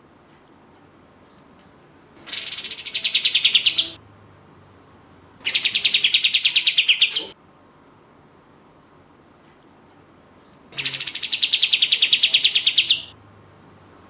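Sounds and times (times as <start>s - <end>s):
songbird rattling trills: 2.3s - 4.0s, 10.8s - 13.1s.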